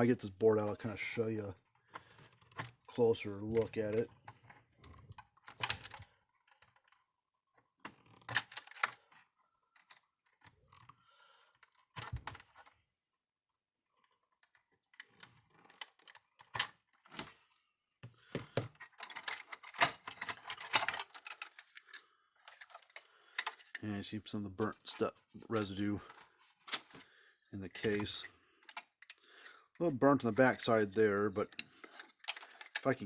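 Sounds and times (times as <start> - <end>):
clicks and rattles of plastic casing: 18.1 - 23.9, 27.7 - 33.0.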